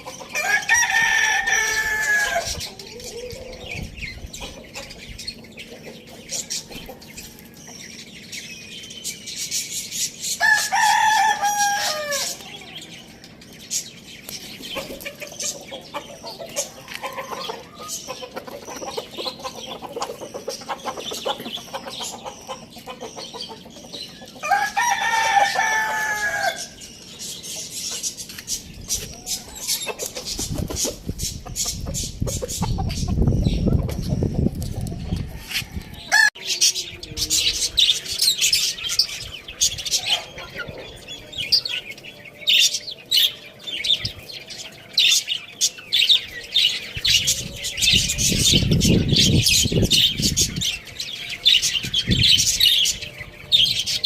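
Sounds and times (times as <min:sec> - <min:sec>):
small birds chirping: 0:00.0 - 0:54.0
rooster crowing: 0:00.4 - 0:02.6, 0:10.4 - 0:12.4, 0:24.4 - 0:26.8, 0:35.3 - 0:36.6
hens clucking: 0:01.5 - 0:08.0, 0:14.3 - 0:26.4, 0:27.5 - 0:36.4.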